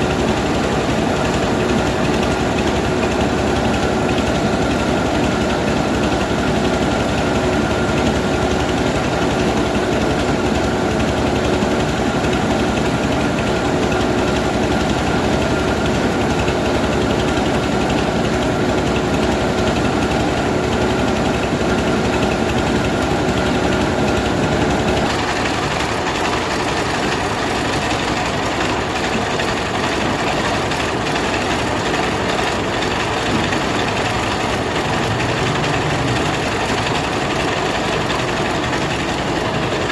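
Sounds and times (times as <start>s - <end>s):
steady hum: 0.0s - 25.1s
rice milling machine drone: 0.0s - 39.9s.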